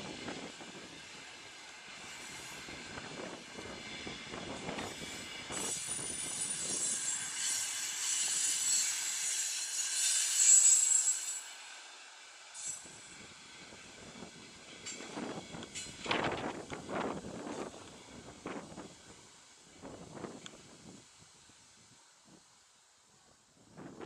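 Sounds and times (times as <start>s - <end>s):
train running on rails: 0.0s - 24.0s
high steady squeal: 1.9s - 11.6s.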